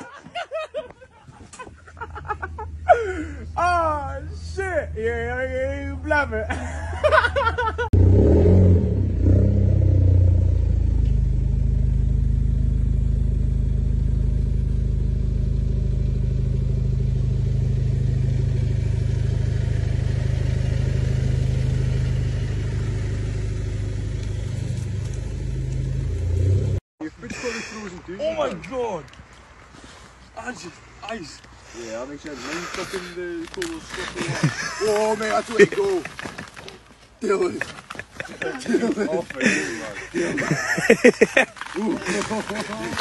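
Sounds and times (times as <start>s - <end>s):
car engine running: 8.0s - 26.8s.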